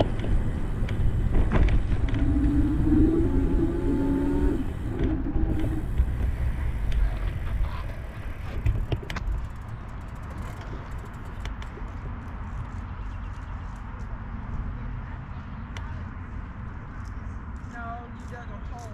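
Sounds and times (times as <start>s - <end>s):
steady droning tone: 0.0s - 10.0s
wind and riding noise: 0.0s - 18.9s.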